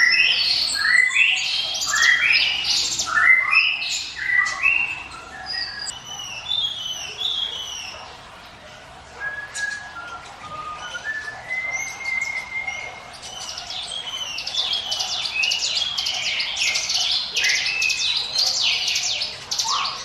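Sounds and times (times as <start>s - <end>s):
bird singing chirped notes: 0.0s - 8.0s.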